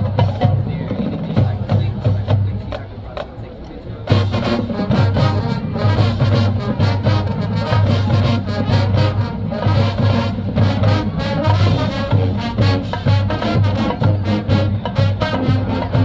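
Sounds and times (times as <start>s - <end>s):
marching band playing brass: 0.0s - 2.8s, 4.0s - 16.0s
steady drum beat: 0.0s - 16.0s.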